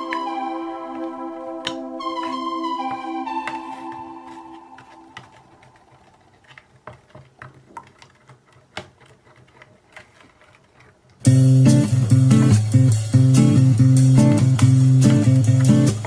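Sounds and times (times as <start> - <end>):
synthesizer music: 0.0 - 5.6
strummed guitar music: 11.2 - 16.0.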